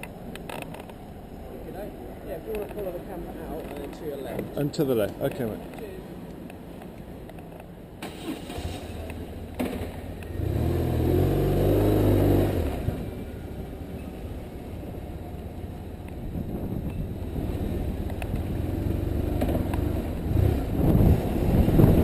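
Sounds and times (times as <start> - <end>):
motorcycle engine revving: 8.3 - 13.9, 16.4 - 22.0.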